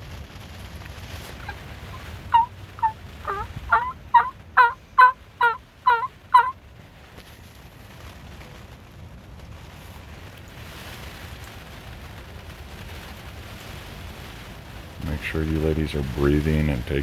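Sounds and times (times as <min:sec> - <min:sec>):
turkey yelping: 0:01.4 - 0:06.6.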